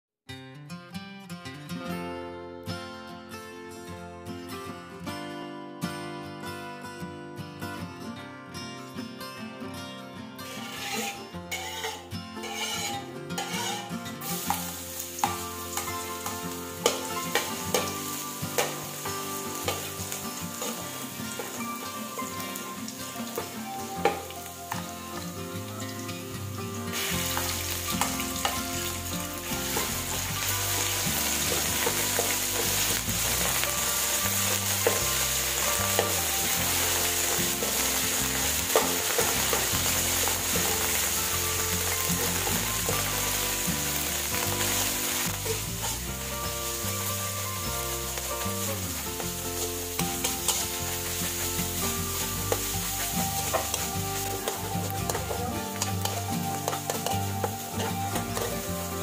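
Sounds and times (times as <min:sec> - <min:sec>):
metal ladle scraping a wok: 0:10.5 - 0:22.7, 0:26.9 - 0:46.0, 0:49.2 - 0:59.0
garlic sizzling in hot oil: 0:10.5 - 0:59.0.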